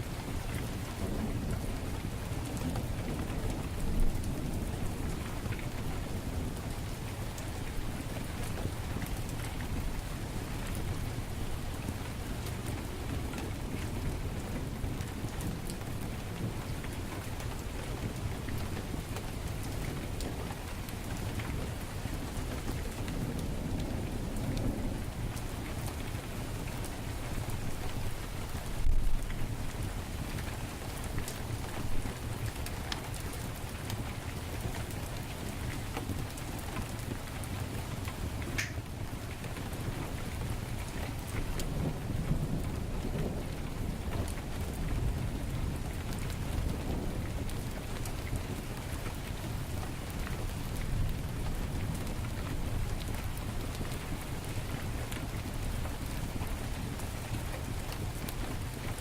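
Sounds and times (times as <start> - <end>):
heavy rain falling: 0.0 - 59.0
wood fire crackling: 27.7 - 42.7, 43.6 - 59.0.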